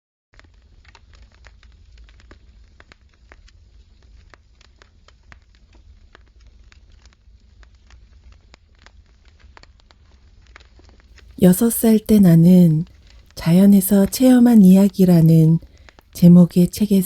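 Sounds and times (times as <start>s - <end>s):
firewood crackling and popping: 0.4s - 11.2s
low steady hum: 11.4s - 12.8s, 13.4s - 15.6s, 16.2s - 17.0s.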